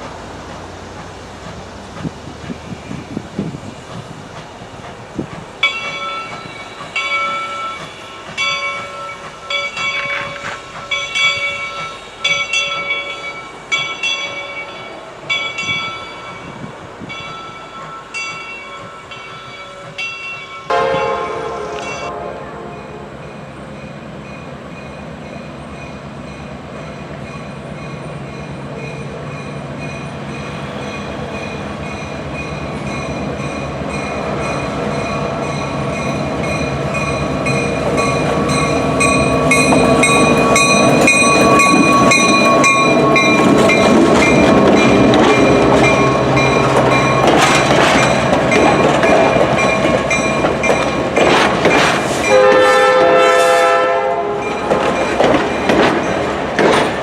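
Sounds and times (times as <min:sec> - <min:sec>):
train passing: 0:00.0 - 0:57.0
train horn: 0:20.7 - 0:23.2, 0:52.2 - 0:54.8
wheels clattering over rail joints: 0:34.0 - 0:53.2, 0:54.4 - 0:57.0.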